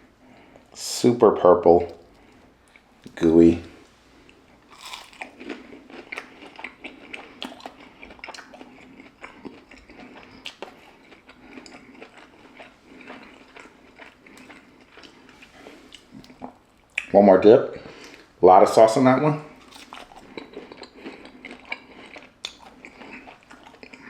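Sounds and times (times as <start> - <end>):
chewing with mouth clicks: 1.8 - 3.1, 4.2 - 17.1, 19.5 - 24.0.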